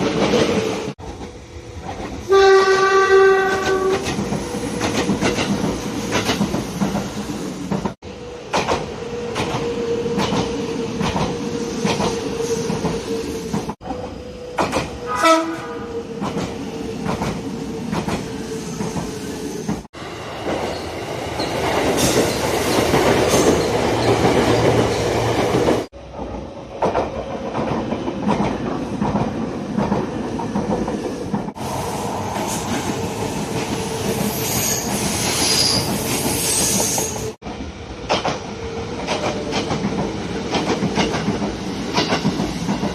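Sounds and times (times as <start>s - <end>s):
train horn: 2.3s - 4.2s, 15.0s - 16.0s.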